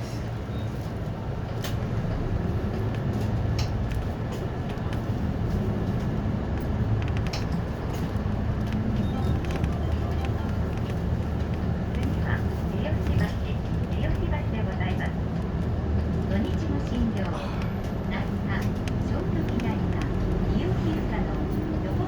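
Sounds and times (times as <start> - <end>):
bus engine drone: 0.0 - 22.0
sharp rattling clicks: 6.6 - 9.7.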